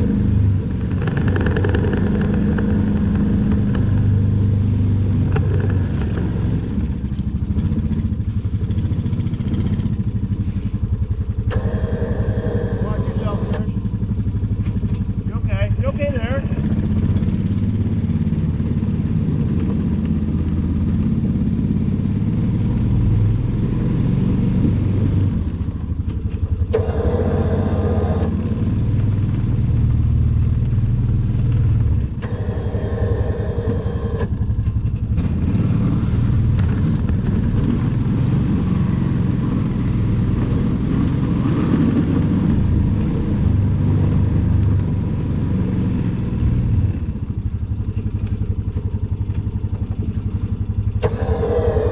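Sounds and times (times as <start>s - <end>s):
engine running: 0.0s - 51.9s
short higher-pitched noise bursts: 11.5s - 13.7s.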